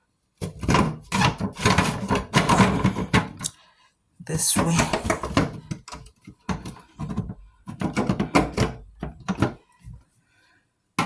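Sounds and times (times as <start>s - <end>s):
plastic parts knocking and scraping: 0.4s - 3.5s, 5.0s - 10.0s.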